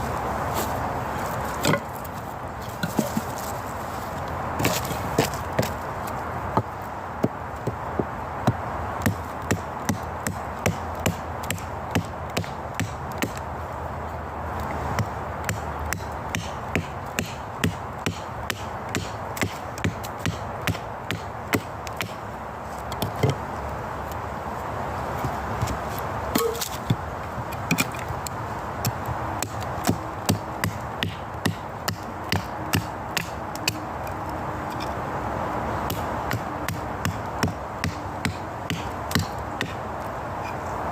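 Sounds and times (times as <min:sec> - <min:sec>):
wood chopping strikes: 0:01.6 - 0:02.0, 0:06.5 - 0:13.4, 0:14.9 - 0:22.2, 0:25.2 - 0:28.2, 0:28.8 - 0:33.8, 0:35.9 - 0:39.8.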